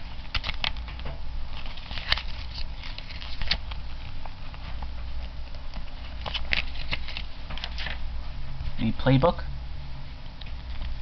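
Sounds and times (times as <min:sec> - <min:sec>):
steady low hum: 0:00.0 - 0:11.0
paper and cardboard rustling: 0:01.5 - 0:08.0.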